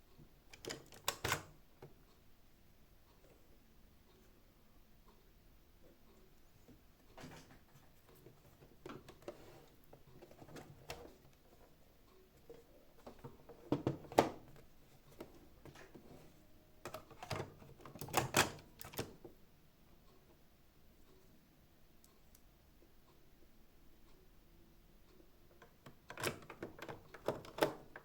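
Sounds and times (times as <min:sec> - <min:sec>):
plastic parts clicking and knocking: 0:12.4 - 0:16.0, 0:16.8 - 0:19.2, 0:25.5 - 0:28.0.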